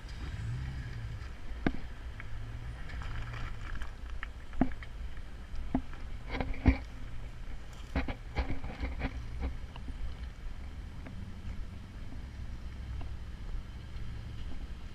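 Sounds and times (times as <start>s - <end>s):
engine running low: 0.0s - 14.9s
knocks and clunks: 7.8s - 9.6s.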